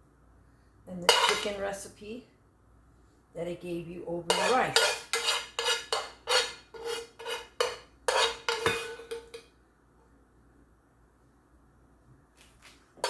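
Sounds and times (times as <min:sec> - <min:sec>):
spoon scraping metal pan: 0:01.0 - 0:01.8, 0:04.2 - 0:09.5.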